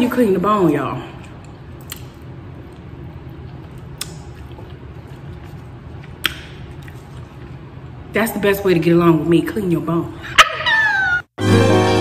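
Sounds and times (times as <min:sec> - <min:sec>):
wet chewing: 0:01.8 - 0:07.6.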